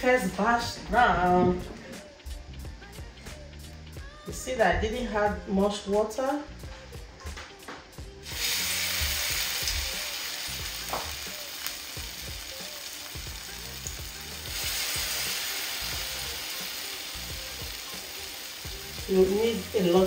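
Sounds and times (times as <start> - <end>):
batter sizzling in hot oil: 8.2 - 20.0.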